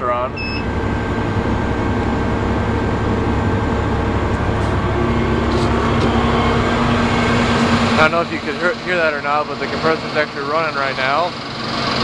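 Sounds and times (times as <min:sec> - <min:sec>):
steady low tone: 0:00.0 - 0:11.0
compressor humming: 0:00.0 - 0:12.0.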